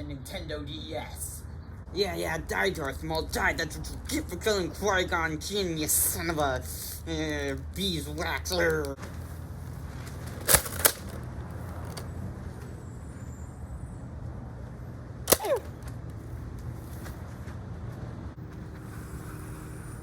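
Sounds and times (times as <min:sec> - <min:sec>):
steady low hum: 0:11.2 - 0:20.0
sharp clicks: 0:15.3 - 0:16.0.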